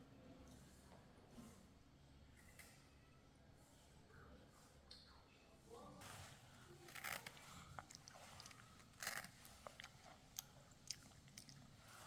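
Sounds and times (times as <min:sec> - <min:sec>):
person chewing and crunching: 0:06.9 - 0:12.0.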